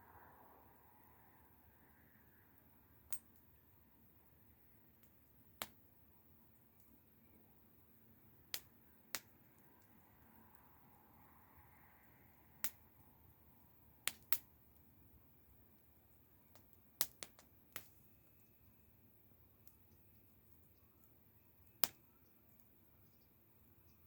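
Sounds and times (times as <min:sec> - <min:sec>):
wood fire burning: 0:01.8 - 0:24.0
burning wood popping: 0:08.4 - 0:10.0, 0:14.0 - 0:14.9, 0:16.2 - 0:18.5, 0:19.3 - 0:24.0.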